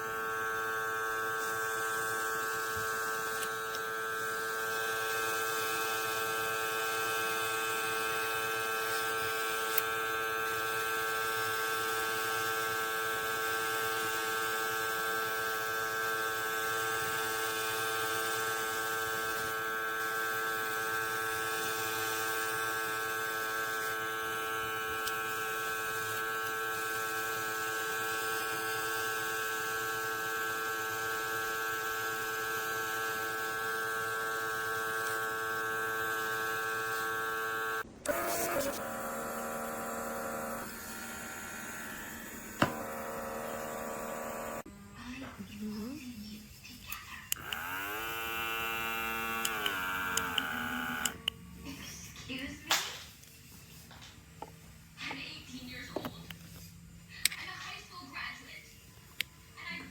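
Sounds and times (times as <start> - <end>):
airbrush compressor whining: 0.0 - 44.9, 46.8 - 52.5
click: 46.9 - 47.7, 49.4 - 51.4, 57.2 - 57.4.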